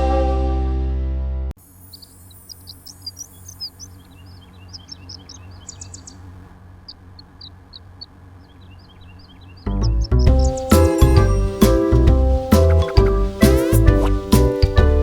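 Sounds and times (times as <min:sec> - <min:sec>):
birds chirping: 0:01.6 - 0:15.0.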